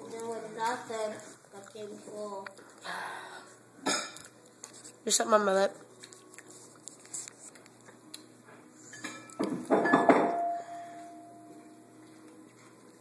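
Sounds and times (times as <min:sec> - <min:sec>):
tableware clattering: 0:03.8 - 0:04.2, 0:08.9 - 0:10.9
tableware ringing: 0:09.0 - 0:11.5.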